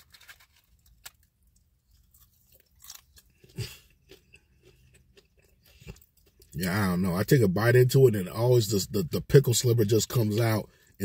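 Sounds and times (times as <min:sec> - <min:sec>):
crunching while chewing: 0:00.0 - 0:06.6.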